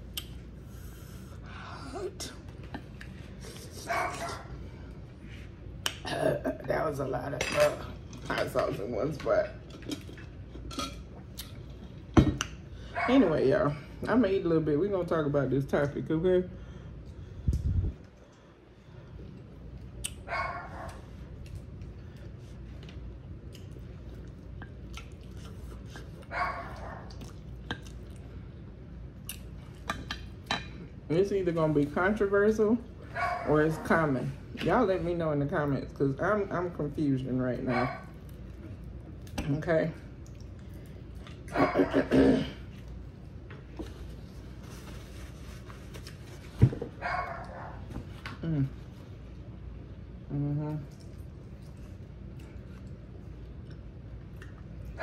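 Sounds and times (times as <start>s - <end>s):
steady low hum: 0.0s - 55.0s
chewing and mouth noises: 17.0s - 30.5s, 40.1s - 45.0s, 50.6s - 55.0s
person chewing crispy food: 18.2s - 28.4s.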